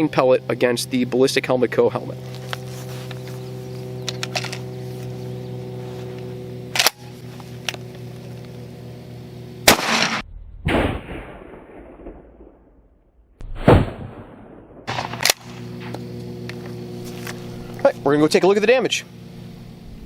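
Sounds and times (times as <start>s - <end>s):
steady hum: 0.0s - 10.2s, 14.1s - 20.0s
shotgun blasts with echo: 9.6s - 12.8s, 13.4s - 15.7s.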